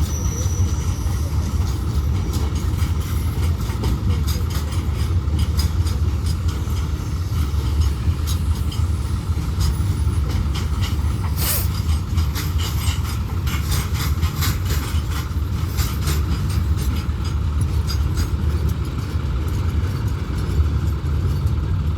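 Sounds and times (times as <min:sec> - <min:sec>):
heavy vehicle rumbling: 0:00.0 - 0:21.9.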